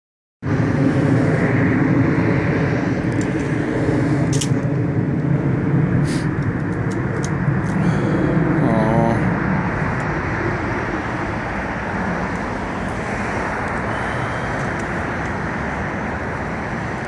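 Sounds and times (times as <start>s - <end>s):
car engine idling: 12.2s - 17.0s.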